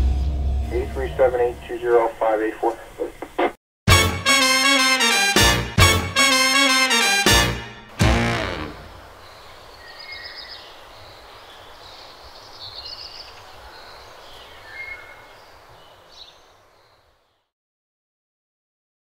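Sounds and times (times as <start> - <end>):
music hit: 0.0 - 1.6, 3.9 - 9.1
steady background hiss: 8.9 - 17.0.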